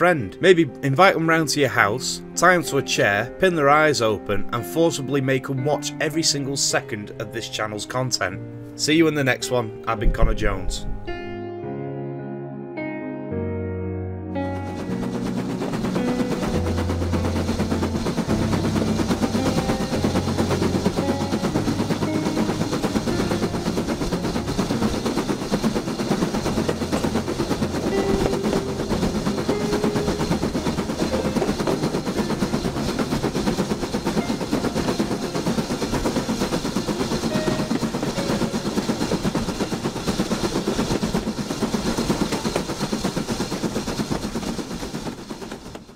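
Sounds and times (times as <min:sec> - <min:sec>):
miniature train wheels clattering: 0:14.6 - 0:45.9.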